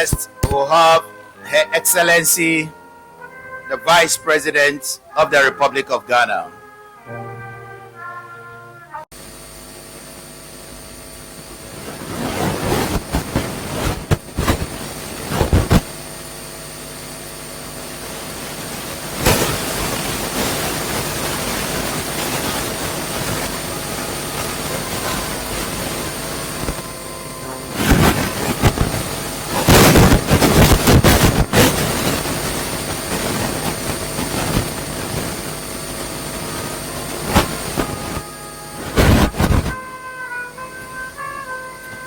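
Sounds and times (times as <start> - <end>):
mechanical drone: 8.8 - 42.0.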